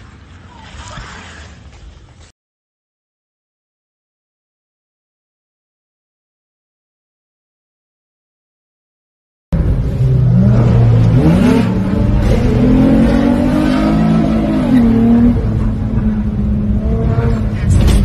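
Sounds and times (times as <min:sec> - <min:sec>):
road noise: 0:00.0 - 0:02.3, 0:09.5 - 0:18.0
car engine accelerating: 0:09.6 - 0:18.0.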